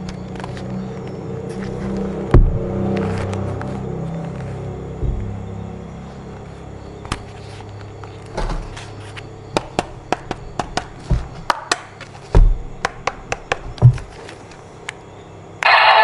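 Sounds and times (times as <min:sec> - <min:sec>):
dull thumps: 0:02.2 - 0:03.4, 0:05.0 - 0:05.6, 0:08.4 - 0:14.2.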